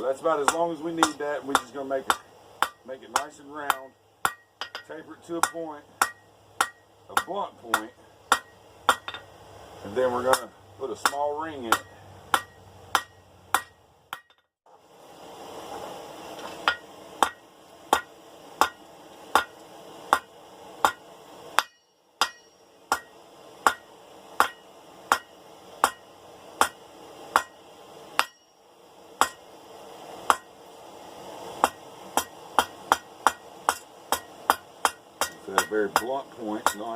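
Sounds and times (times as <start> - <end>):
hammer striking steel on anvil: 0.4 - 9.3, 10.2 - 14.5, 16.6 - 27.6, 28.2 - 28.6, 29.2 - 29.5, 30.3 - 30.5, 31.6 - 36.9.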